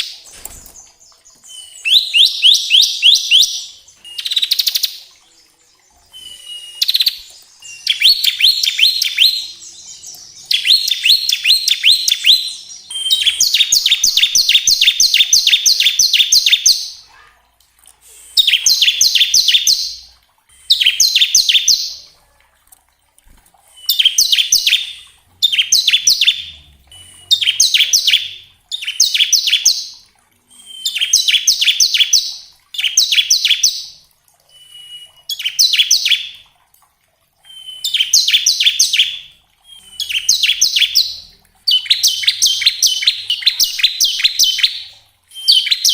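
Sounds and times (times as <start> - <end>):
bird singing rapid trill: 1.3 - 17.1, 23.8 - 30.0, 30.6 - 34.0, 37.5 - 45.9.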